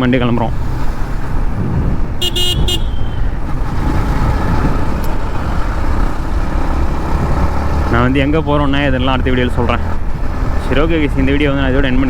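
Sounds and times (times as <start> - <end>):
motorcycle engine and wind rumble: 0.0 - 12.0
vehicle horn beeps: 2.2 - 3.4.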